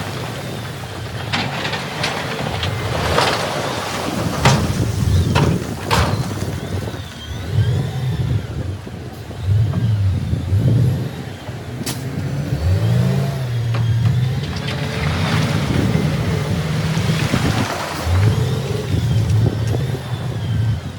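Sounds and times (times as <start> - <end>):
diesel engine revving: 0.0 - 20.9
sharp clanks: 0.4 - 7.1, 11.8 - 20.4.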